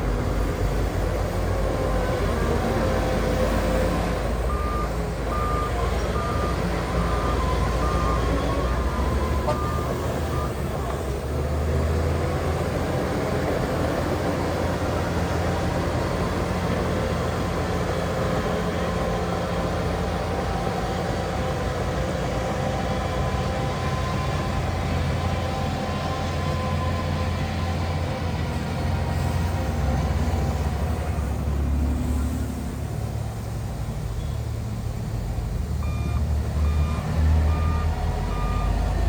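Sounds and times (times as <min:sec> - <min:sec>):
diesel engine drone: 0:00.0 - 0:39.0.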